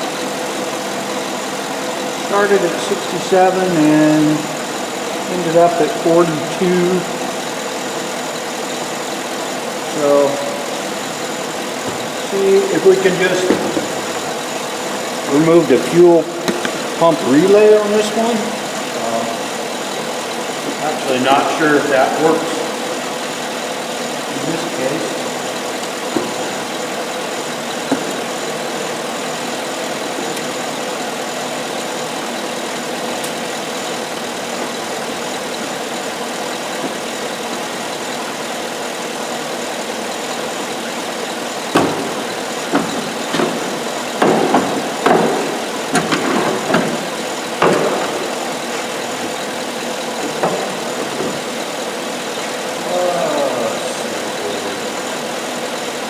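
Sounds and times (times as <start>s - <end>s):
truck engine idling: 0.0s - 56.0s
sharp clicks and knocks: 10.2s - 18.8s, 24.4s - 31.1s, 33.1s - 33.8s, 40.8s - 52.6s.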